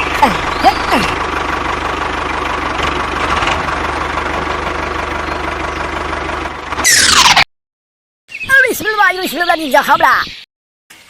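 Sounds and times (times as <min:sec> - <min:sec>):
engine idling: 0:00.0 - 0:07.3.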